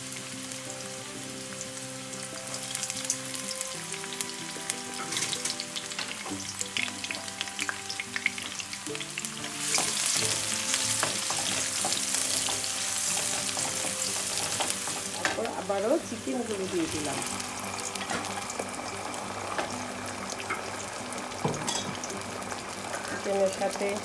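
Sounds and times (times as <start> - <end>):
onions sizzling in a pan: 0.0 - 24.0
quiet background music: 0.0 - 24.0.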